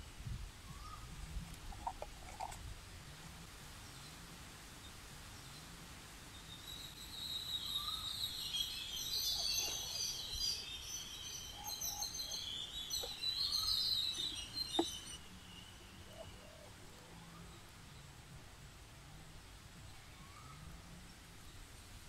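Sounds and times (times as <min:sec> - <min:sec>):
birds chirping and chattering: 0:01.6 - 0:02.6, 0:07.2 - 0:17.1.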